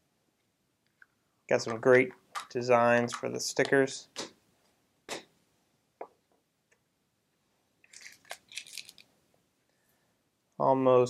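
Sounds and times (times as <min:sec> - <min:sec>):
crinkling and crackling: 0:07.8 - 0:09.2.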